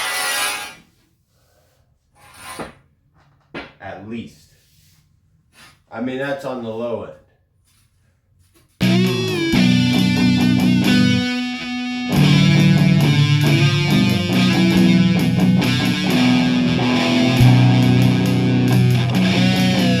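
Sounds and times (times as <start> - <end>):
rock music with distorted guitar: 8.8 - 20.0.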